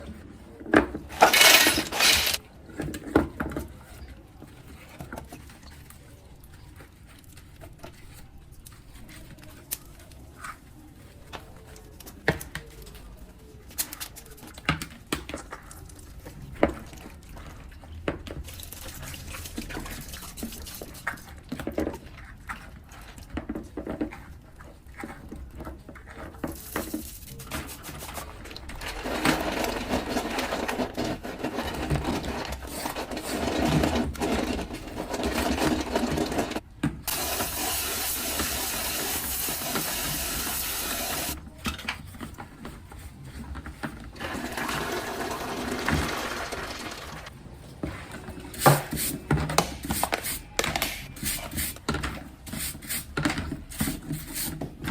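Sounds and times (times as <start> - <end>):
objects being handled: 0.0 - 54.9
running water: 37.1 - 41.4, 44.2 - 47.3.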